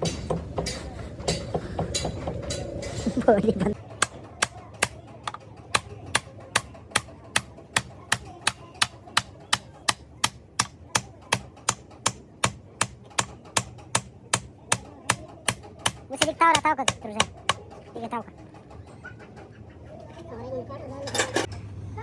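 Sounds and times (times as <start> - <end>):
hammer striking metal: 3.9 - 17.6.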